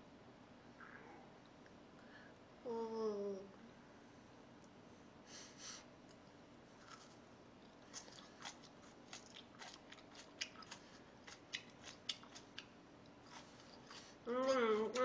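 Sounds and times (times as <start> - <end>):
chewing crunchy food: 6.8 - 15.0.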